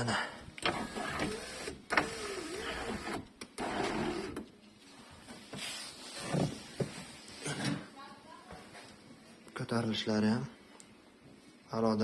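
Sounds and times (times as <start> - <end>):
sunroof motor whining: 0.6 - 4.4.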